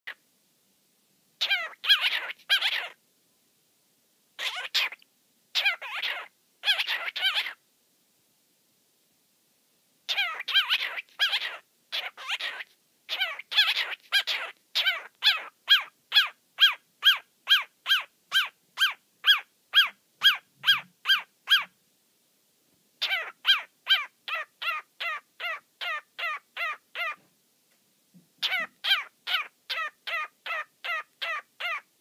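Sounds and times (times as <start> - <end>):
cockatiel calling: 1.4 - 3.0, 4.4 - 7.6, 10.1 - 21.8, 23.0 - 27.3, 28.4 - 31.9.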